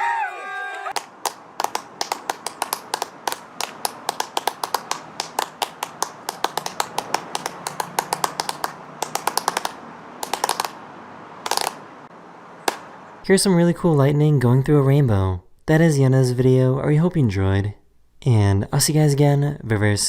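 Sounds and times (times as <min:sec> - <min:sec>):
sharp clicks and taps: 0:00.9 - 0:10.8, 0:11.4 - 0:11.8.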